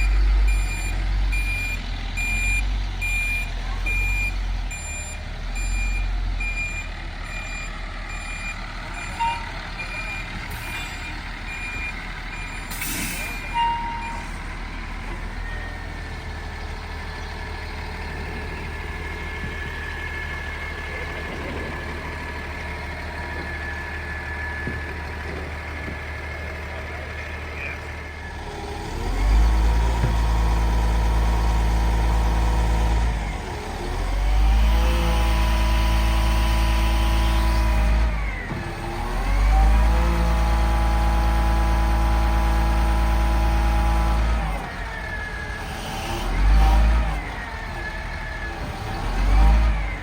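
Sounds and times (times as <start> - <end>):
large vehicle engine revving: 14.4 - 50.0.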